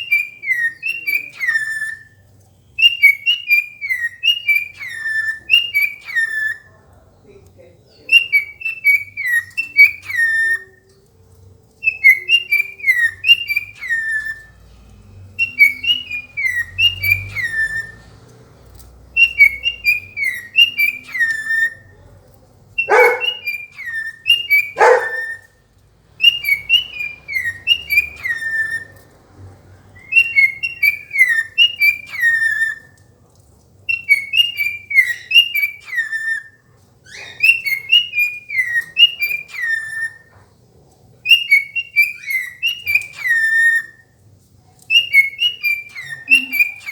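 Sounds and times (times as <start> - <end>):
cockatiel whistling: 2.8 - 6.7, 8.1 - 10.8, 11.8 - 14.5, 15.3 - 18.1, 19.1 - 21.9, 22.8 - 25.6, 26.2 - 29.1, 30.0 - 33.0, 33.9 - 40.3, 41.3 - 44.1, 44.9 - 46.9.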